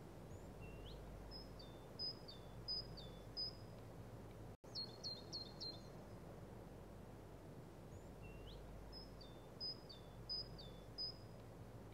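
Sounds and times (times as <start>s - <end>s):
low background hiss: 0.0s - 11.9s
songbird singing: 0.2s - 3.9s, 4.6s - 6.3s, 7.8s - 11.9s.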